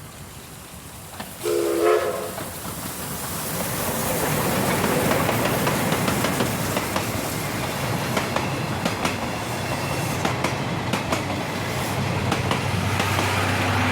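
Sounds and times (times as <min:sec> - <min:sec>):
train coaches rumbling: 0:00.0 - 0:13.9
wheels clacking over rail joints: 0:02.3 - 0:13.9.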